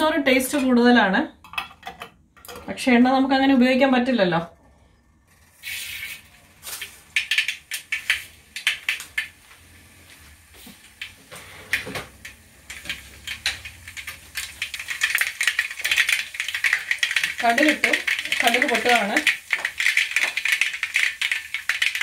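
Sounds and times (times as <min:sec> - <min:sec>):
seeds crackling and popping in oil: 0:05.4 - 0:09.7, 0:10.3 - 0:22.0.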